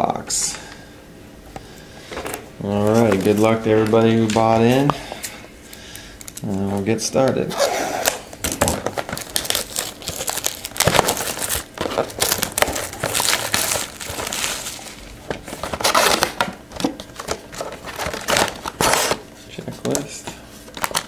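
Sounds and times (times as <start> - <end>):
packaging rustling: 2.0 - 21.0
plastic wrap crinkling and tearing: 2.7 - 4.9, 6.2 - 19.2, 19.8 - 21.0.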